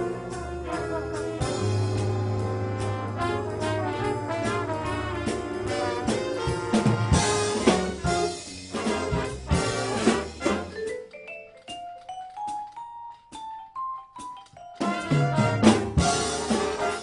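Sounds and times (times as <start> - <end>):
brass band playing: 0.0 - 11.0, 14.8 - 17.0
drum and cymbal hits: 0.0 - 11.0, 14.8 - 17.0.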